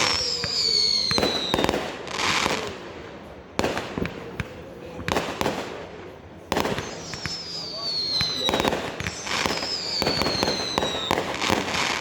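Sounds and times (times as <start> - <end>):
firework whistle falling in pitch: 0.0 - 1.6, 6.8 - 11.4
sharp firework bangs: 3.6 - 12.0
firework hissing burst: 6.6 - 12.0.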